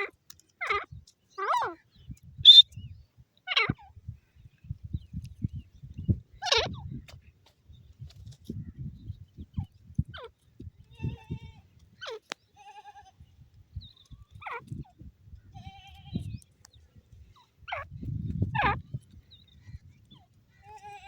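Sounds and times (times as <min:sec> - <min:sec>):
francolin calling: 0:02.4 - 0:02.9.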